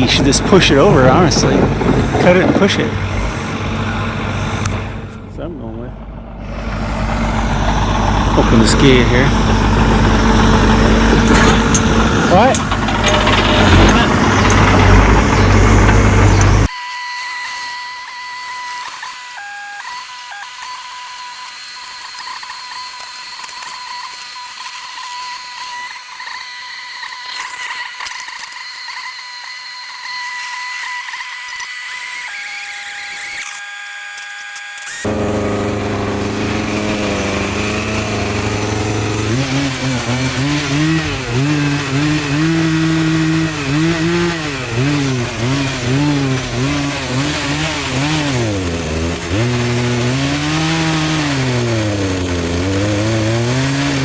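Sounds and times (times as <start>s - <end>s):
high steady whine: 0.0s - 39.8s
chainsaw running: 0.0s - 54.0s.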